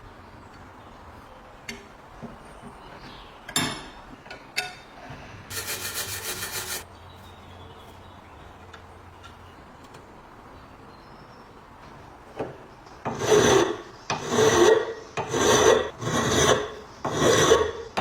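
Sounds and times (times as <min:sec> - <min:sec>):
quick even scraping strokes: 0:05.5 - 0:06.8.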